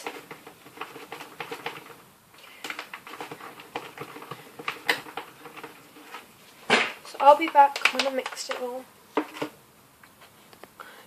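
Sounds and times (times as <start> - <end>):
slime being stirred squelching: 0.0 - 8.7.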